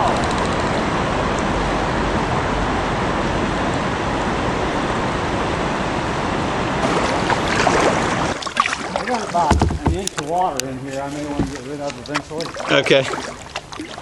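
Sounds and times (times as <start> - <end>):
river water rushing over rocks: 6.8 - 9.6.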